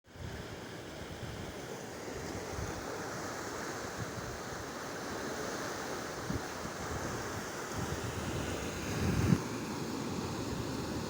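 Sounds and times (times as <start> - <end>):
wind buffeting microphone: 6.1 - 9.5.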